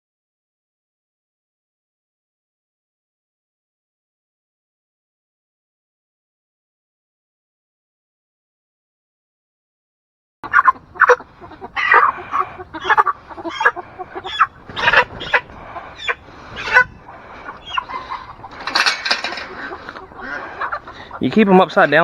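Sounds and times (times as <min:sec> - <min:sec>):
chickens squawking and clucking: 0:10.4 - 0:22.0.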